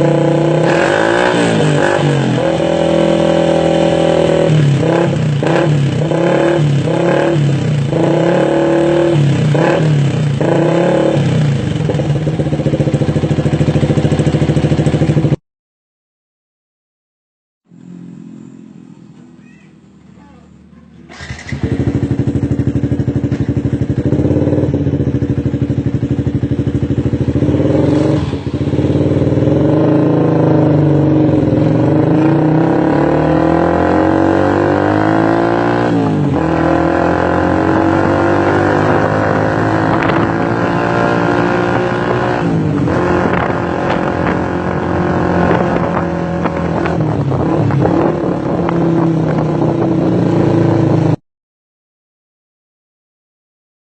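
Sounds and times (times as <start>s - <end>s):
motorcycle engine revving: 0.0s - 15.4s, 17.7s - 51.2s.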